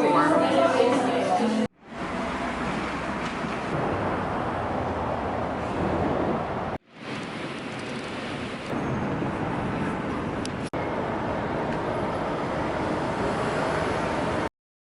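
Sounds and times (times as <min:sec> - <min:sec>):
passing street traffic: 0:00.0 - 0:14.5.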